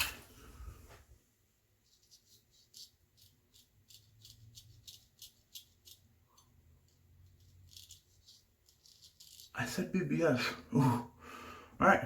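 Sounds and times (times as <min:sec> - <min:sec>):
razor scraping skin: 0:01.9 - 0:09.6.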